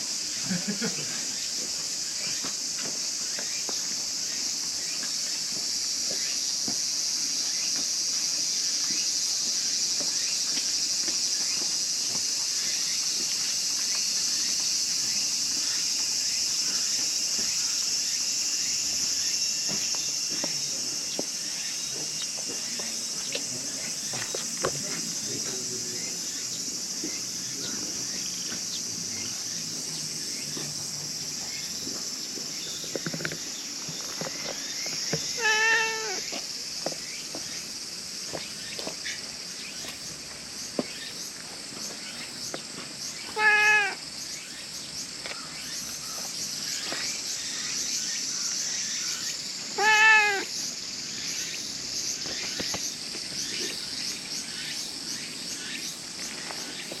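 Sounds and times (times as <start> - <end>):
cat meowing: 35.4 - 36.2, 43.3 - 44.0, 49.8 - 50.5.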